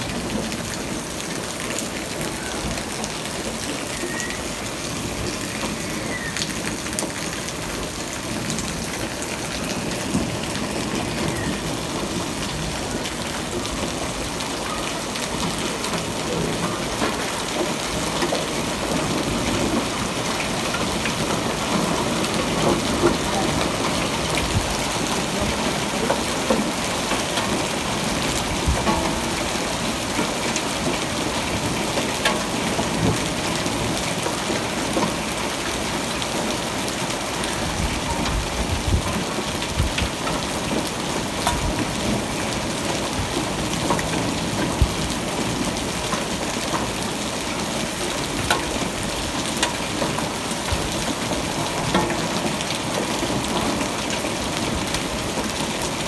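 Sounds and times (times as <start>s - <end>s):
steady rainfall hiss: 0.0s - 56.0s
raindrop ticks: 15.2s - 35.8s, 38.1s - 47.2s, 48.1s - 55.1s.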